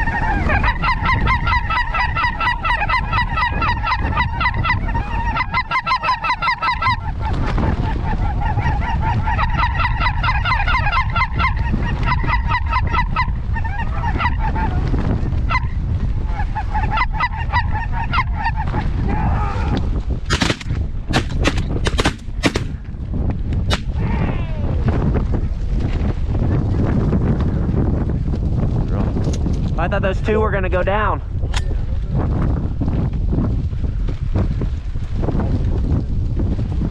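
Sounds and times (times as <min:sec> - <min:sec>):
geese honking: 0:00.0 - 0:14.8, 0:16.3 - 0:18.8
wind rumble on microphone: 0:00.0 - 0:36.9
shotgun shots: 0:20.3 - 0:22.8, 0:23.7 - 0:24.0.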